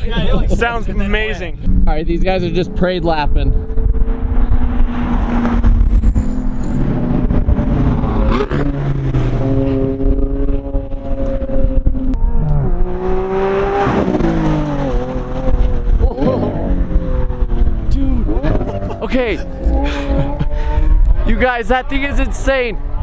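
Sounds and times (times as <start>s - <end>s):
supercar engines running: 0.0s - 23.0s
wind buffeting microphone: 1.5s - 18.8s.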